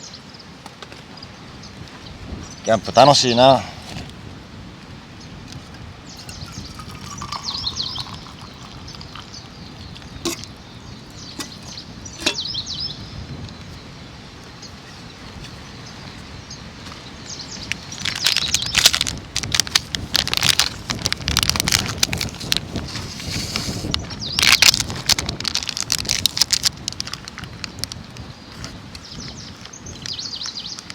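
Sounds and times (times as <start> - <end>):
outdoor background hiss: 0.0 - 21.3
dense crackles and clicks: 5.5 - 12.6, 16.8 - 30.9
birds chirping: 6.0 - 19.4, 23.3 - 24.9, 27.6 - 30.9.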